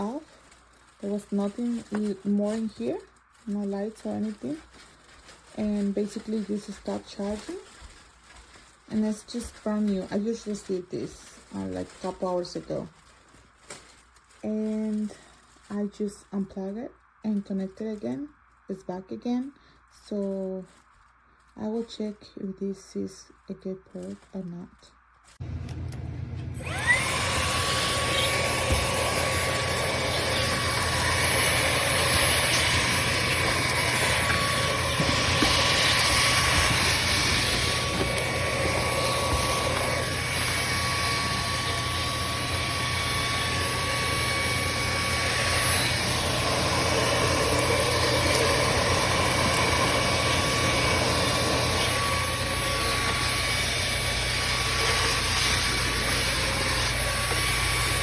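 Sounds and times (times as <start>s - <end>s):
stick vacuum motor whine: 25.4s - 58.0s.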